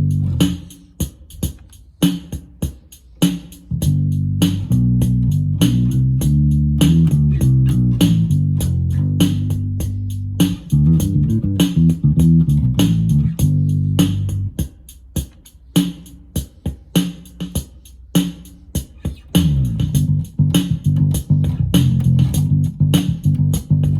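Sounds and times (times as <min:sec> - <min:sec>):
electric bass guitar bassline: 0:00.0 - 0:00.6, 0:03.8 - 0:14.6, 0:19.4 - 0:23.9
drum machine beat: 0:00.0 - 0:23.9.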